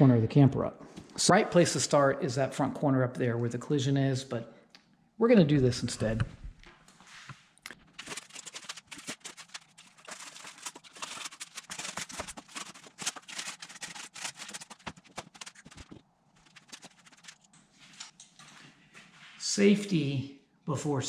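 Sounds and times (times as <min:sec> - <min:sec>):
rotten wood crackling and snapping: 0:07.7 - 0:17.5.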